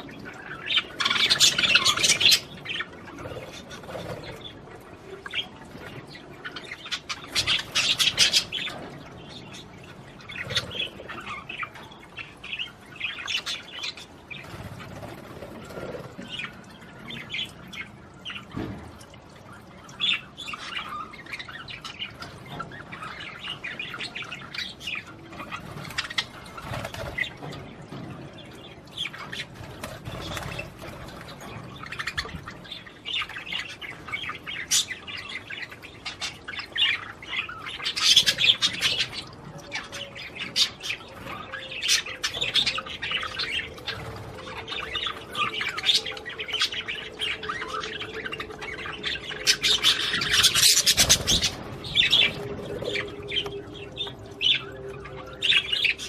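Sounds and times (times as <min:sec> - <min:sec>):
budgerigars chirping: 0:33.1 - 0:56.0.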